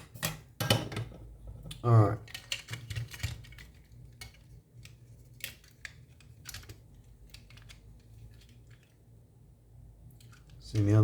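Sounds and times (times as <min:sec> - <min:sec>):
plastic parts clicking: 0:01.6 - 0:08.9.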